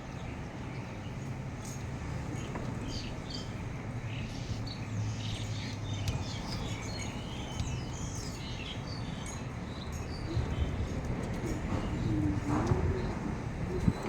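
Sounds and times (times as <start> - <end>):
small birds chirping: 0.0 - 14.0
storm rumble and hiss: 10.1 - 14.0.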